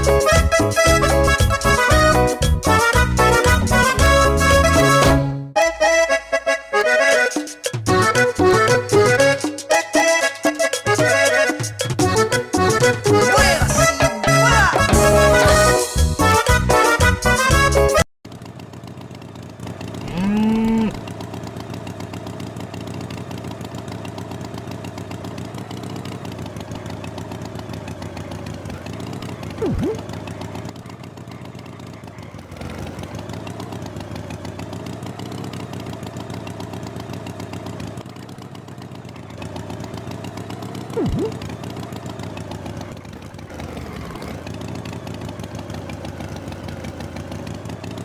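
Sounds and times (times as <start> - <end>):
cartoon tractor engine: 0.0 - 48.0
song: 4.8 - 15.9
cow moo: 20.0 - 21.0
sharp blip: 41.0 - 41.5.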